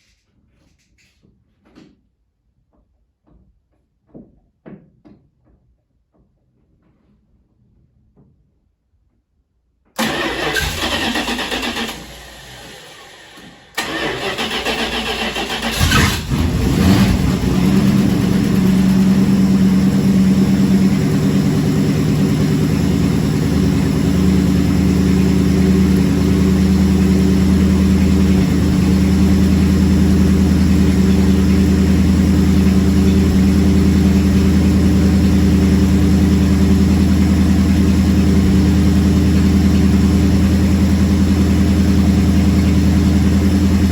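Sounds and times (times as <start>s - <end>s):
engine cranking and idling: 10.0s - 43.9s.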